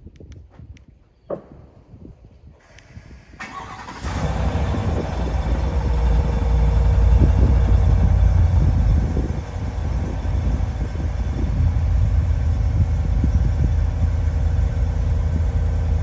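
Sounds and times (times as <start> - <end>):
deep exhaust rumble: 3.0 - 16.0
engine cranking: 3.4 - 15.9.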